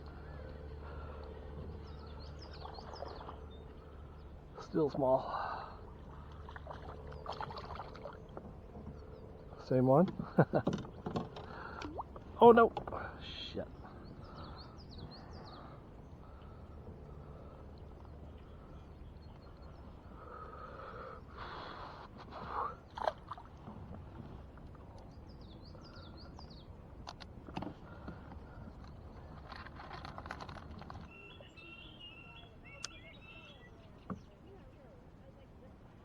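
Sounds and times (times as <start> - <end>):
low rumble: 0.0 - 4.6
birds chirping: 0.0 - 22.8, 24.1 - 34.9.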